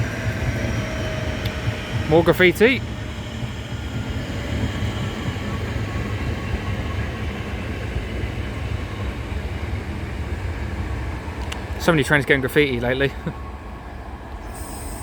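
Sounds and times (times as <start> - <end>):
train wheels rumbling on rails: 0.0 - 15.0
faint steady tones: 12.4 - 15.0.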